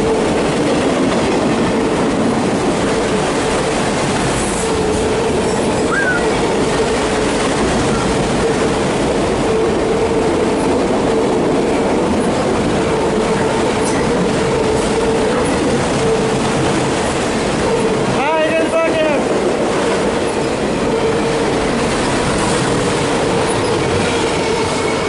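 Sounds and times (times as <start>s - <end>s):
freight train rumbling past: 0.0s - 25.0s.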